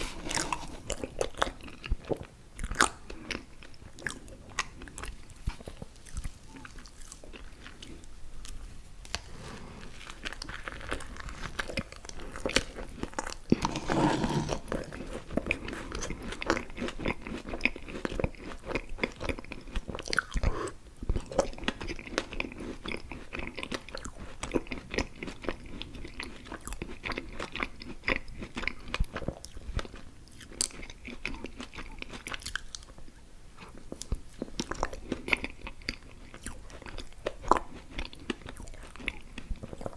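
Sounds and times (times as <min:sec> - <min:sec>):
person chewing and biting: 0:00.0 - 0:08.0, 0:10.2 - 0:20.5.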